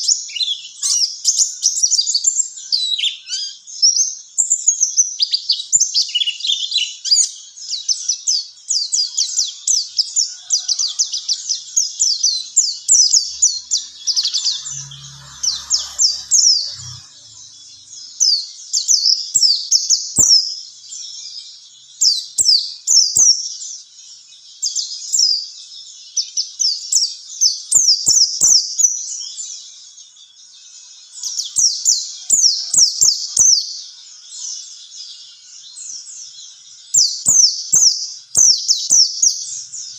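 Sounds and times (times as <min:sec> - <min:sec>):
bird warbling song: 0:00.0 - 0:39.9.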